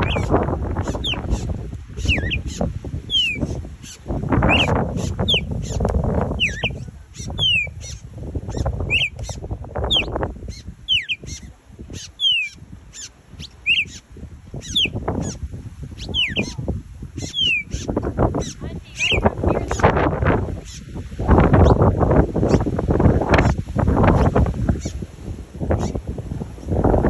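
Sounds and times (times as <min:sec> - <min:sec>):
birds whistling calls: 0:00.0 - 0:14.0, 0:14.6 - 0:26.1.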